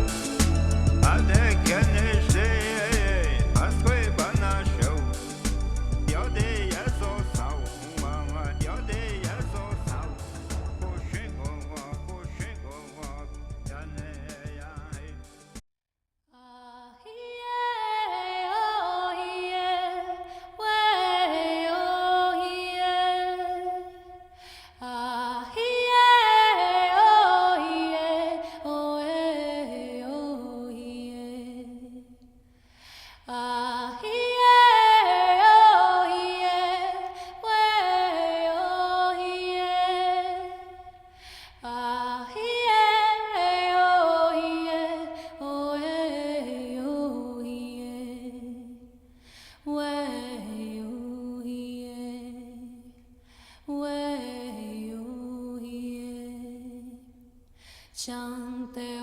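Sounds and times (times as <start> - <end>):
person singing unaccompanied: 0.0 - 15.2
breaths: 20.2 - 20.6, 24.2 - 24.8, 28.4 - 28.7, 32.4 - 33.3, 37.0 - 37.4, 41.0 - 41.6, 45.1 - 45.4, 49.0 - 49.7, 53.2 - 53.7, 57.4 - 58.0.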